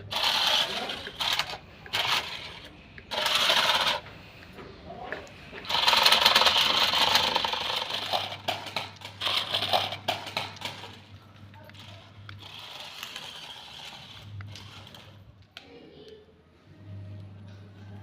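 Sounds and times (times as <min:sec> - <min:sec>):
sharp clicks and rattles: 0:00.0 - 0:04.1, 0:05.6 - 0:15.5
small electric motor whirring: 0:00.1 - 0:04.1, 0:05.6 - 0:10.8, 0:11.8 - 0:15.2.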